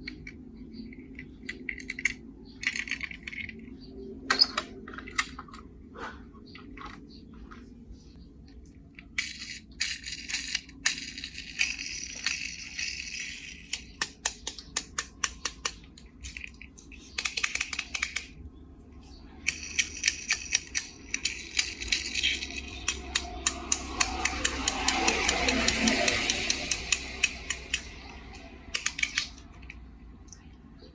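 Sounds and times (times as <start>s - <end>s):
toy cars clicking and rattling: 0.0s - 3.7s, 9.0s - 18.4s, 19.4s - 29.8s
scraping rattle: 9.1s - 14.1s, 19.4s - 29.7s.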